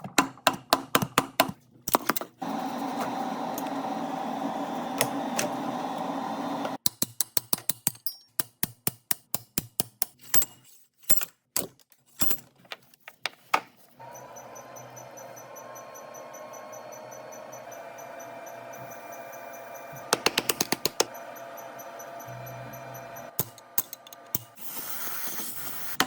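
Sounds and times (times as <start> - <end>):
steady mechanical hum: 2.4 - 6.8, 14.0 - 24.6.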